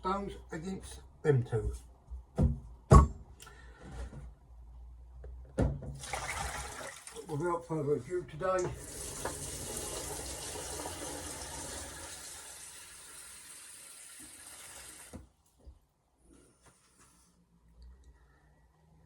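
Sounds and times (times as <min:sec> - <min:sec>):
water running from a tap: 0:06.0 - 0:07.4, 0:08.6 - 0:15.2.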